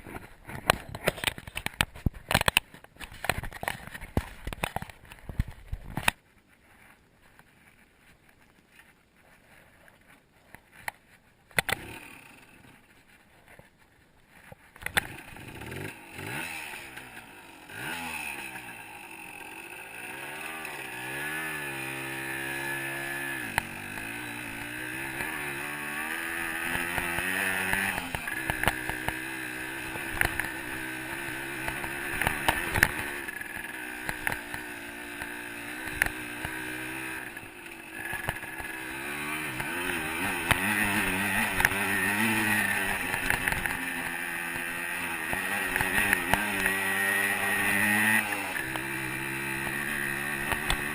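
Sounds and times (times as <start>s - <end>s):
dirt bike engine revving: 11.6s - 12.8s, 15.0s - 50.9s.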